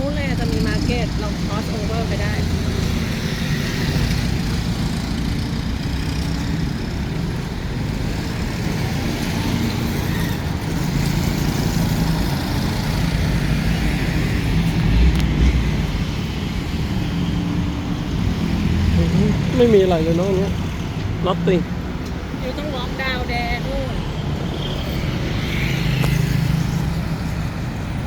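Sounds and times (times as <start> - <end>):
vehicles passing: 0.0 - 28.0.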